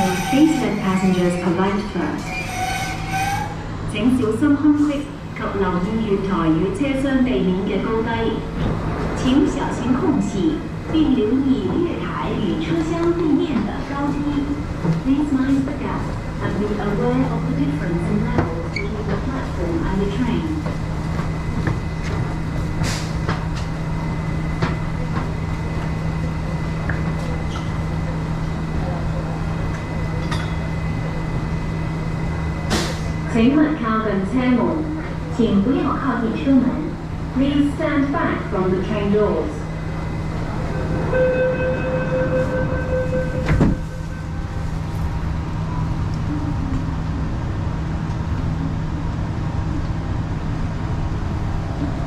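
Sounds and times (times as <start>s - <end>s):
train low hum: 0.0s - 52.0s
thin high tone: 41.1s - 44.6s.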